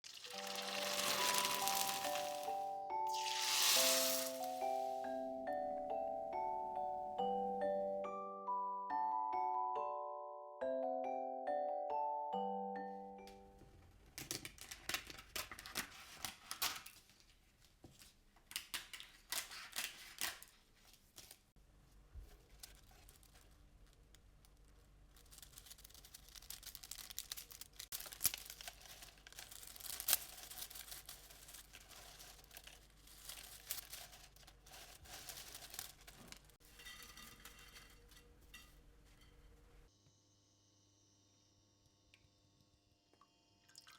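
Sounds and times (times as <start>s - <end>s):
rice paper tearing and crackling: 0.0s - 4.9s, 22.5s - 36.6s.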